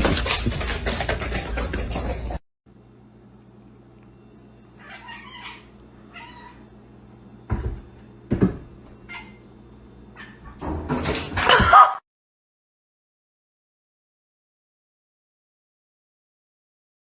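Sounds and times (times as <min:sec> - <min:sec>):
steady low hum: 0:00.2 - 0:04.9, 0:05.6 - 0:10.7
cat meowing: 0:04.8 - 0:06.7.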